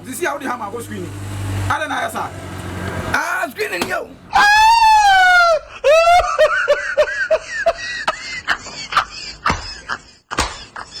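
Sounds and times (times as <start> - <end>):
high-pitched laughter: 5.4 - 11.0.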